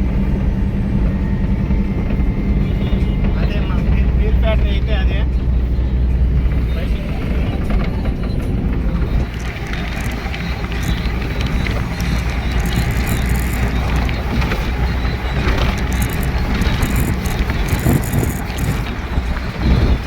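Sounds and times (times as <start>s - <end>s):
truck engine and road rumble: 0.0s - 20.0s
wind hissing on microphone: 9.2s - 20.0s.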